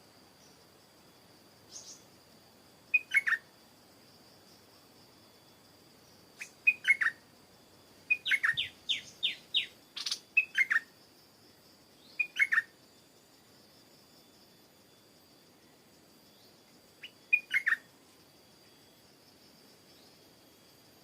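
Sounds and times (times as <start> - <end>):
bulbul singing: 2.9 - 3.4, 6.4 - 7.2, 8.1 - 10.9, 12.0 - 12.7, 16.4 - 17.8
faint steady high tone: 4.4 - 21.0.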